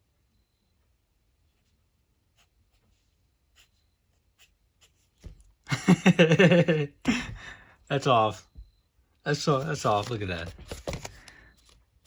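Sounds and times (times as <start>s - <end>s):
pen scratching on paper: 1.5s - 5.4s
man's voice: 7.9s - 8.4s, 9.3s - 10.6s.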